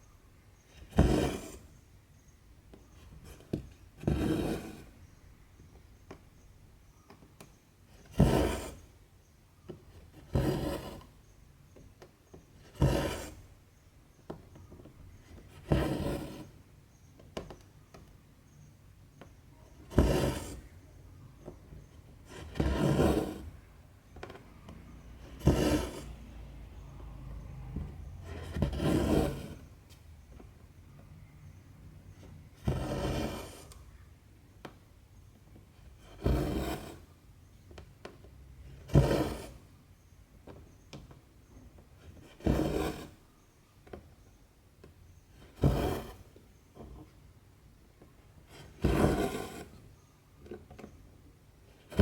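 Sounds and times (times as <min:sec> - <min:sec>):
thread rasping through fabric: 0:22.2 - 0:26.2, 0:45.3 - 0:46.4.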